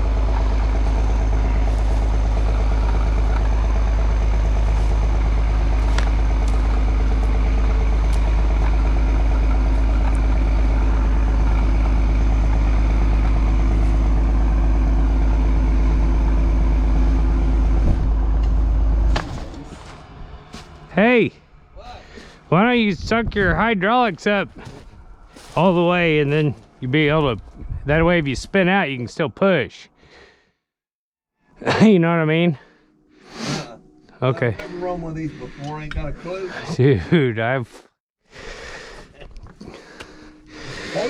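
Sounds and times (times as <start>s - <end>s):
diesel engine running: 0.0s - 29.7s, 31.7s - 37.3s, 38.4s - 41.0s.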